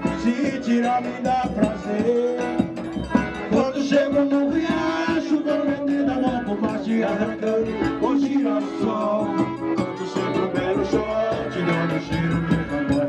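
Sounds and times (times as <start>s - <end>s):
upbeat folk-dance band music: 0.0s - 13.0s
singing: 3.6s - 13.0s.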